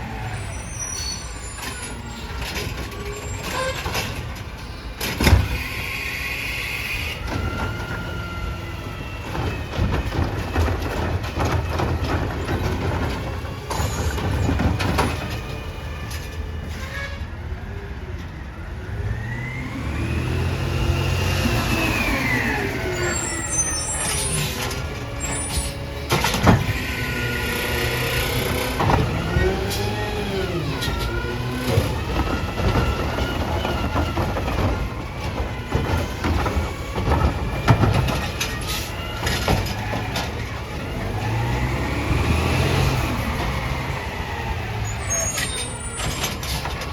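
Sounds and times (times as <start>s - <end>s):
garbage truck engine revving: 17.9s - 46.9s.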